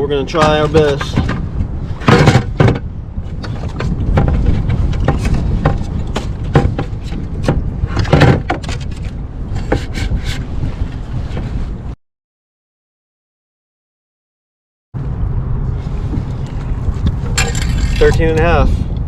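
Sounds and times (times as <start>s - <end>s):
wind rumbling on microphone: 0.0s - 12.0s, 15.0s - 19.0s
knocks and clatter of handling: 0.3s - 10.5s, 17.1s - 18.5s.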